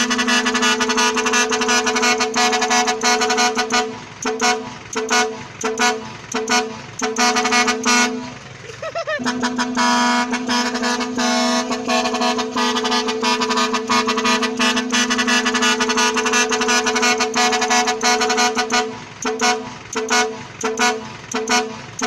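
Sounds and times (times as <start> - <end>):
truck air horn blasts: 0.0 - 8.5, 9.1 - 22.0.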